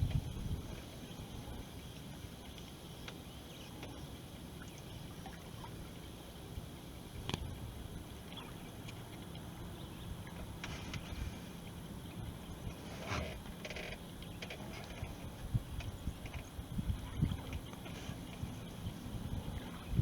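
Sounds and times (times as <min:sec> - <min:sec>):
wind rumble on microphone: 0:00.0 - 0:02.4, 0:06.5 - 0:20.0
water lapping along hull: 0:00.0 - 0:20.0.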